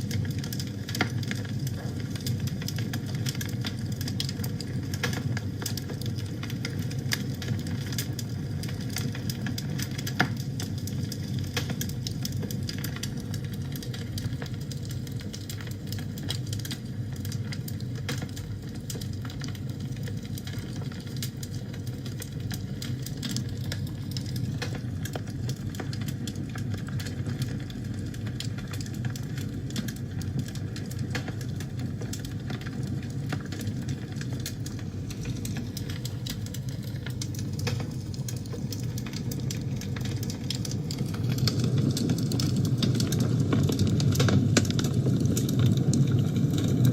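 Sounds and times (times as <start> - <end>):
wood fire crackling and popping: 0.0 - 46.9.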